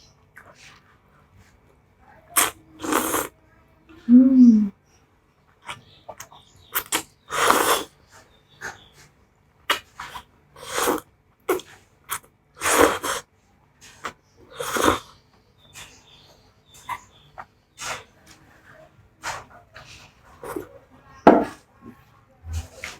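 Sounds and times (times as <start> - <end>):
loud noodle slurps: 2.4 - 3.3, 6.8 - 7.9, 9.7 - 15.1.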